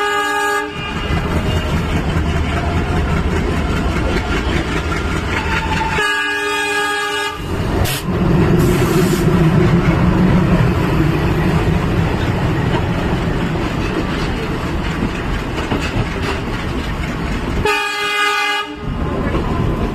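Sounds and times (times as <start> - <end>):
locomotive horn: 0.0 - 2.1, 5.3 - 9.2, 17.6 - 19.0
locomotive engine rumble: 0.8 - 18.1
wheels on rails: 0.8 - 18.2.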